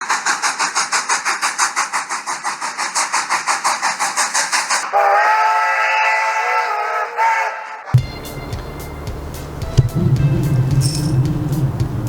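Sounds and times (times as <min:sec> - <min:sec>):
steam train chugging: 0:00.0 - 0:06.9, 0:08.0 - 0:12.0
steam whistle chord: 0:08.0 - 0:12.0.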